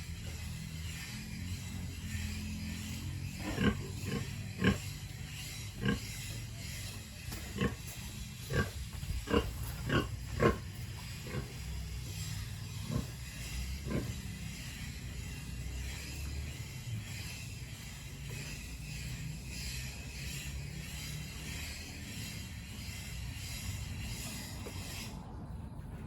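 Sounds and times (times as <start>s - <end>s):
pigs grunting: 0.0s - 25.0s.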